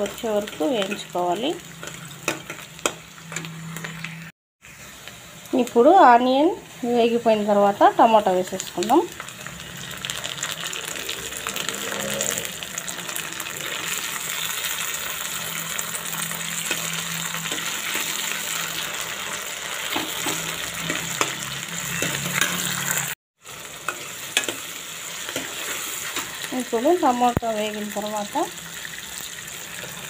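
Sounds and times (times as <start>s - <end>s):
vegetables sizzling in hot oil: 0.0s - 30.0s
steel ladle scraping a pan: 13.2s - 26.5s.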